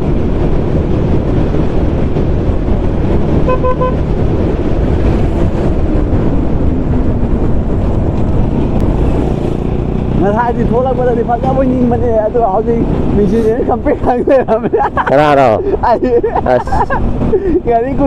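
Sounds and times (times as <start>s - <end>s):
wind noise on microphone: 0.0s - 10.1s
vehicle horn beep: 3.5s - 4.0s.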